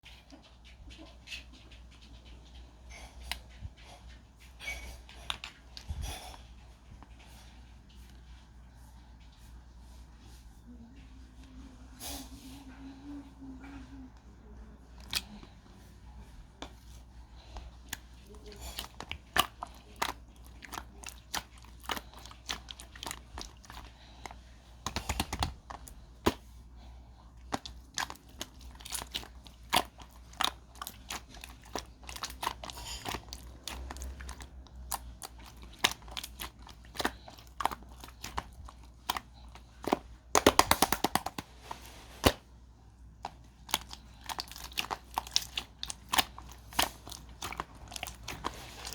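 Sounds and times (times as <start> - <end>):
crinkly material crackling: 14.8 - 48.9.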